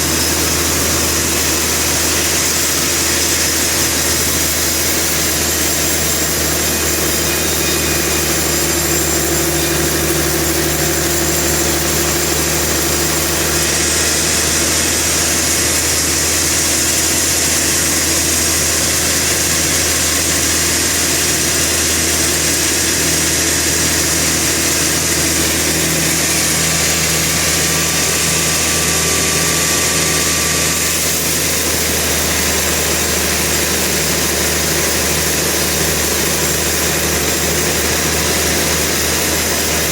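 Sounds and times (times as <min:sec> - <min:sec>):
sawmill machinery droning: 0:00.0 - 0:39.9.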